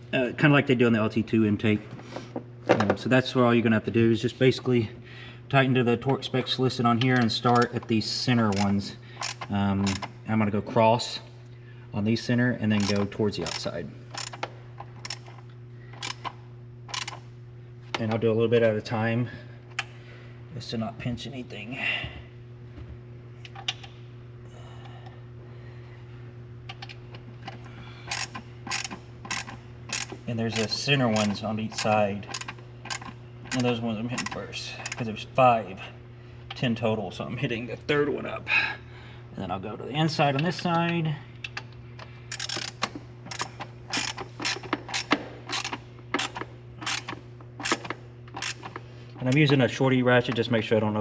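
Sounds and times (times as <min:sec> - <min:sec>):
hand ratchet clicking: 0:08.5 - 0:10.1, 0:12.7 - 0:15.4, 0:16.0 - 0:17.2, 0:26.7 - 0:35.1, 0:42.3 - 0:49.4.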